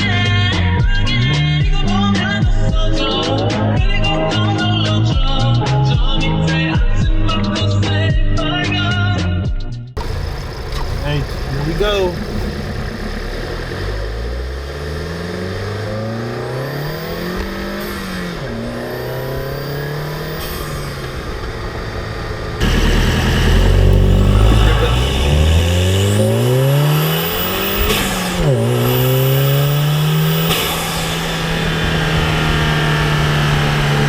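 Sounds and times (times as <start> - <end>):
car engine revving: 10.0 - 34.0.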